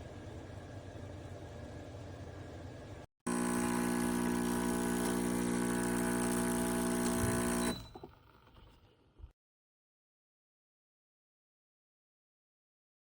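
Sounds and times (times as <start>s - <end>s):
espresso machine buzzing hum: 3.3s - 8.1s.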